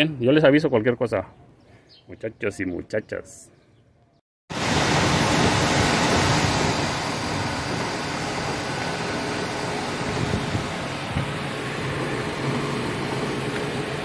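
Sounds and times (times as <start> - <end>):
car engine running: 6.1 - 14.0.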